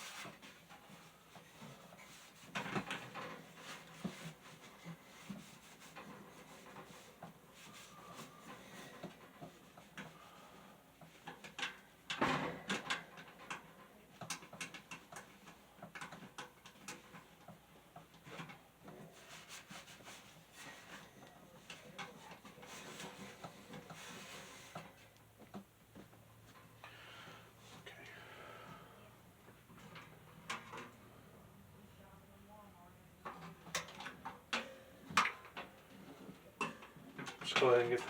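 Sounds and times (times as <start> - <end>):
rubbing and wiping: 0.0 - 9.8, 19.0 - 25.1.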